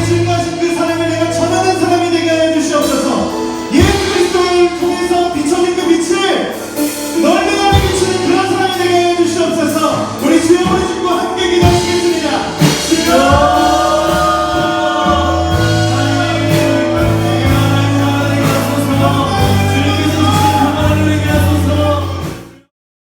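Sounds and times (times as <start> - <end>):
sustained bass line: 0.0 - 5.8, 10.3 - 22.7
drum and cymbal hits: 2.8 - 22.6
voices singing: 12.4 - 22.5.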